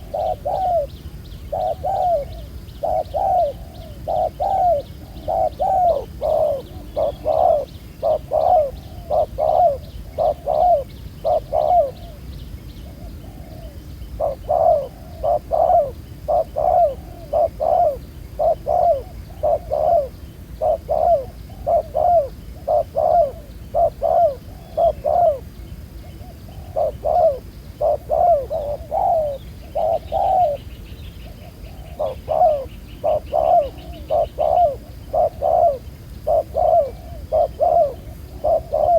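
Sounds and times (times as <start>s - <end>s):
doves cooing: 0.0s - 38.9s
faint high-pitched chirping: 0.0s - 38.9s.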